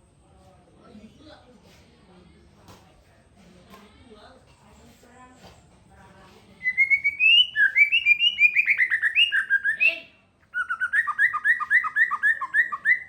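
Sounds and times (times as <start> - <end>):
songbird chirping: 6.6 - 13.0.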